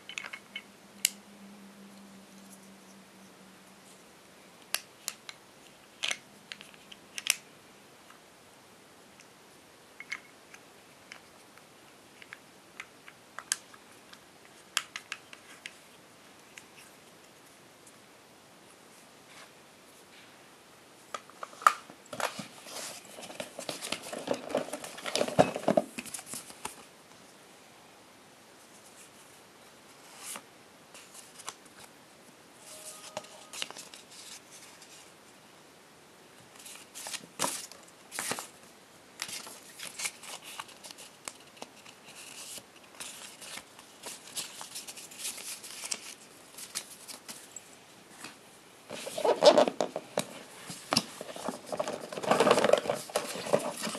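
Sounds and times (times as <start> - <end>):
packaging rustling and crinkling: 21.4 - 26.9, 39.2 - 47.6, 48.9 - 53.9.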